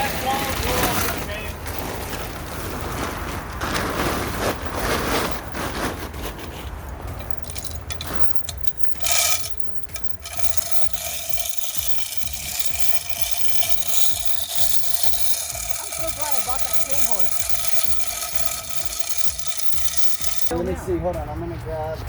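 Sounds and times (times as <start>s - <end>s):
engine scraping against hull: 0.0s - 20.5s
high-pitched rasp: 7.2s - 20.5s.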